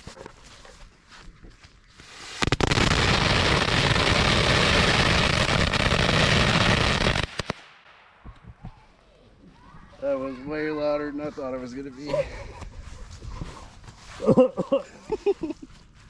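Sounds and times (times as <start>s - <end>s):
firecrackers crackling: 2.0s - 8.4s.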